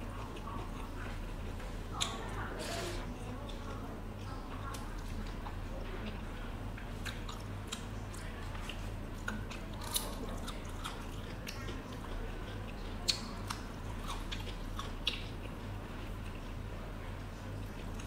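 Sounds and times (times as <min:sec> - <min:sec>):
chewing and biting food: 0:03.4 - 0:16.7.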